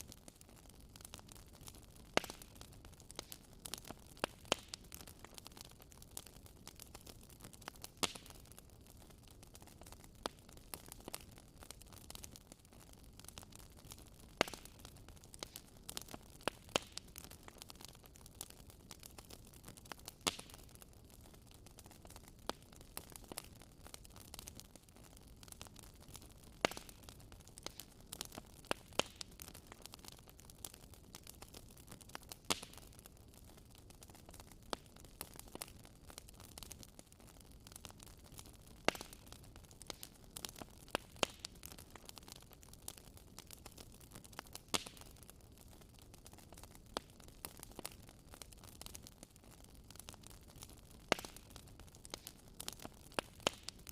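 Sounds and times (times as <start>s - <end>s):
low steady hiss: 0.0s - 53.9s
wood fire crackling and popping: 0.0s - 53.9s.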